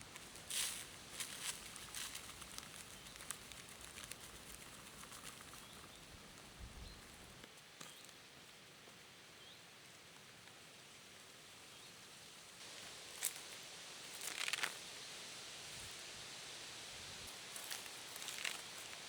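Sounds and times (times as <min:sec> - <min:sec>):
crackling rustles: 0:00.0 - 0:08.2, 0:12.6 - 0:19.0
faint steady hiss: 0:00.0 - 0:19.0.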